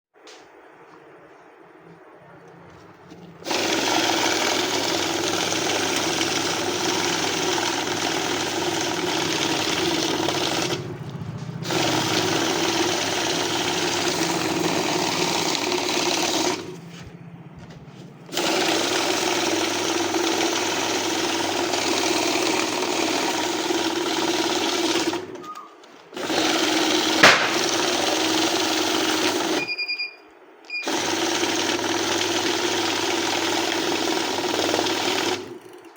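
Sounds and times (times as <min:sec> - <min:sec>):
banknote counting machine whirring: 0:02.7 - 0:17.1, 0:17.8 - 0:29.8, 0:30.7 - 0:35.9
short beeps: 0:29.6 - 0:30.9.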